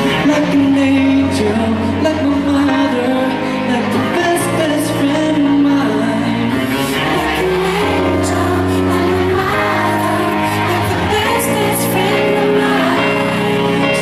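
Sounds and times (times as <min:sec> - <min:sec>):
man singing pop ballad: 0:00.0 - 0:08.0, 0:13.0 - 0:14.0
backing track over sound system: 0:00.0 - 0:14.0.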